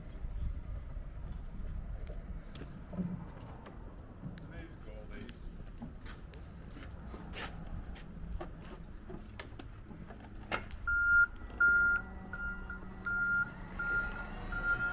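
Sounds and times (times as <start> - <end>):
forklift reversing alarm beeping: 10.8 - 14.9.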